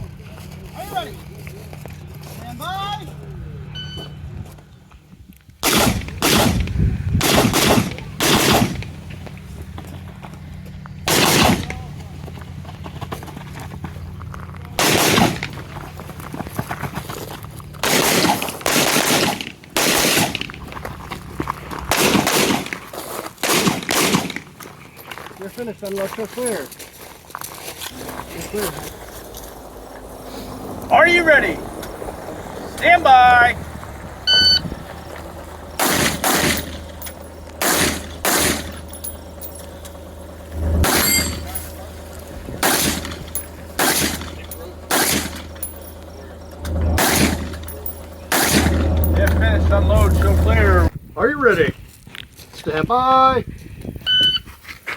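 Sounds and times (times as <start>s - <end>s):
rifle gunfire bursts: 5.6s - 8.9s, 11.1s - 11.7s, 14.8s - 15.6s, 17.8s - 20.5s, 21.9s - 22.8s, 23.4s - 24.6s, 35.8s - 37.0s, 37.6s - 39.4s, 42.6s - 45.6s, 47.0s - 47.6s, 48.3s - 48.8s.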